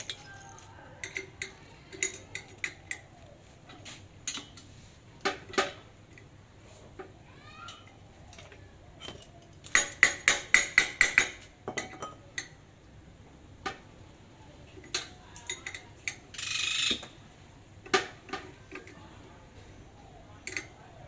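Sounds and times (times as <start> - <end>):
metal tools clinking: 0.0 - 3.1.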